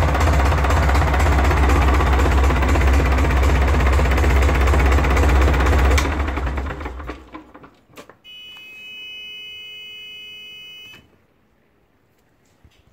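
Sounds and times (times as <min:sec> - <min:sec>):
diesel engine spinning down: 0:00.0 - 0:07.7
electronic buzzer tone: 0:08.3 - 0:11.1.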